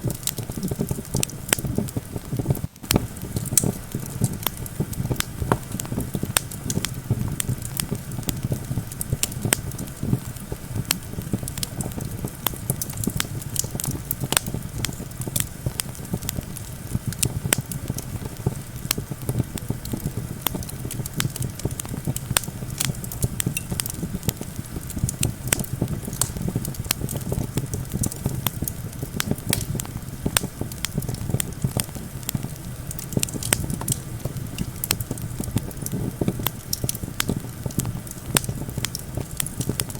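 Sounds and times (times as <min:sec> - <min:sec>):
campfire crackling and popping: 0:00.0 - 0:39.9
low wind noise: 0:00.0 - 0:39.9.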